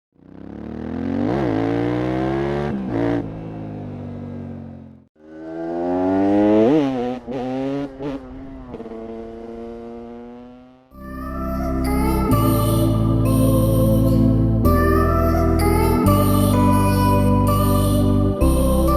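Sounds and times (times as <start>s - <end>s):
motorcycle engine accelerating: 0.1s - 11.0s.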